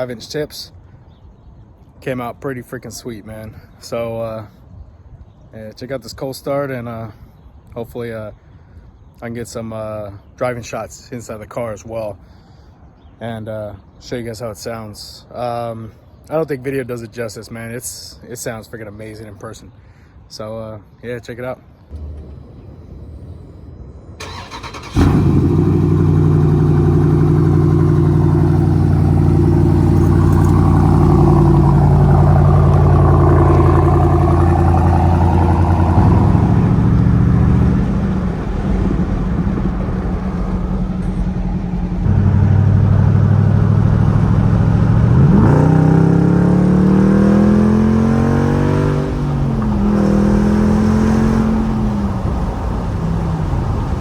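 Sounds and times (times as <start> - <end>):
engine revving: 21.9 - 23.6, 24.2 - 54.0
car engine starting and idling: 21.9 - 54.0.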